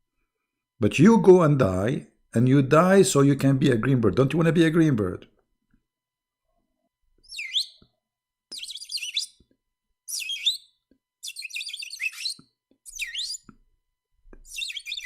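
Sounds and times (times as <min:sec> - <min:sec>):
bird chirping and whistling: 0:07.2 - 0:07.8, 0:08.5 - 0:09.4, 0:10.1 - 0:13.5, 0:14.5 - 0:15.0.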